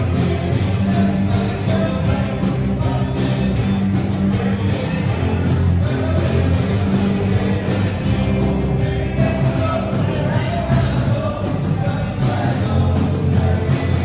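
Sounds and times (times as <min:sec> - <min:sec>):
rock band playing live: 0:00.0 - 0:14.0.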